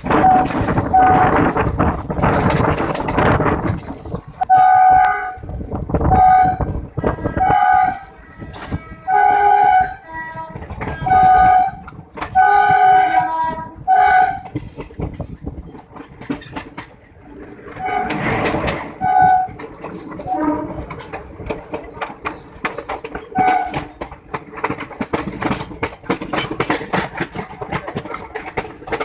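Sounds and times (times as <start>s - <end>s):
train wheels clattering: 0.0s - 29.0s
locomotive horn blasts: 0.1s - 1.5s, 4.5s - 5.5s, 6.1s - 14.5s, 17.8s - 18.2s, 19.0s - 19.6s, 20.2s - 20.9s, 23.4s - 23.8s.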